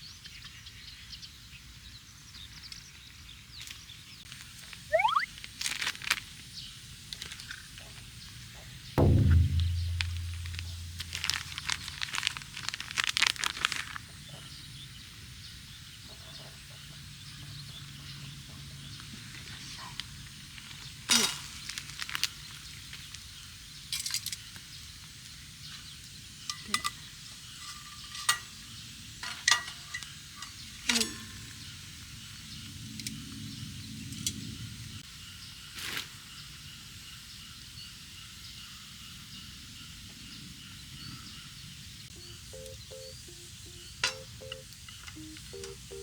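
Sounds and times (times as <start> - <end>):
dull ringing thump: 9.0 - 12.2
utensils clinking against dish: 29.2 - 31.4.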